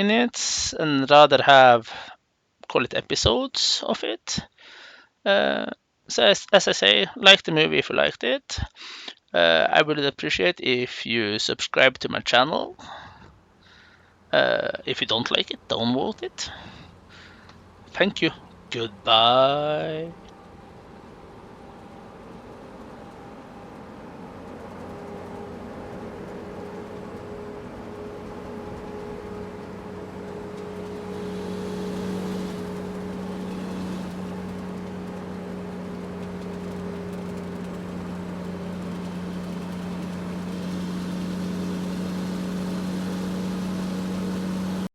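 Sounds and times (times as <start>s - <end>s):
truck diesel engine humming: 13.4s - 44.9s.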